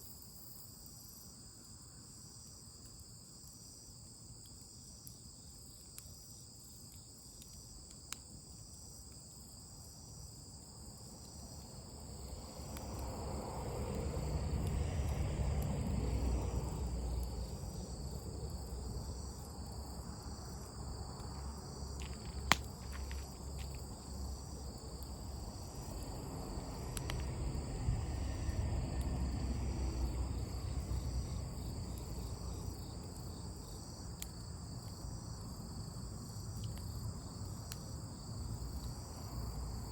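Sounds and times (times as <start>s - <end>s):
crickets chirping: 0.0s - 39.9s
sharp snap: 22.4s - 22.8s.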